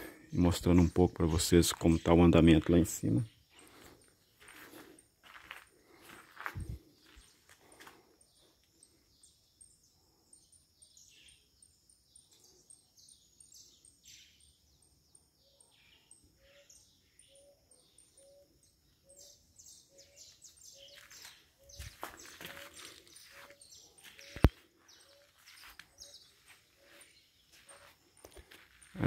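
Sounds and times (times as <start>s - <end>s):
birds chirping: 0.0s - 29.0s
footsteps scuffing on dirt: 3.5s - 8.1s, 20.6s - 29.0s.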